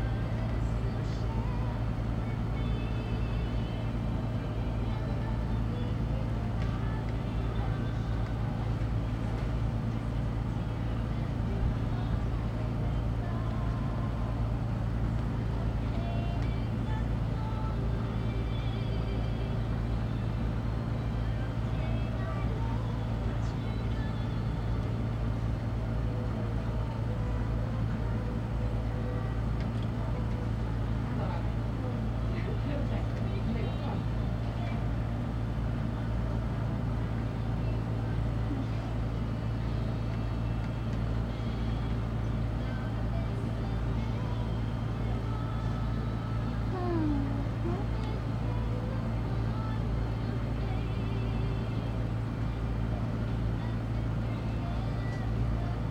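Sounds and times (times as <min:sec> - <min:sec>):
low engine rumble: 0:00.0 - 0:55.9
faint voices: 0:42.4 - 0:51.3.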